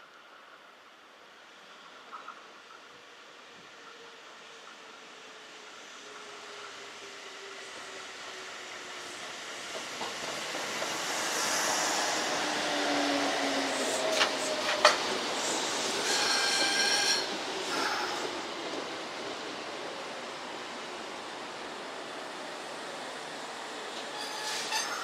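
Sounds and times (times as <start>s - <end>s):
high wheel squeal: 15.8s - 18.2s, 24.1s - 25.0s.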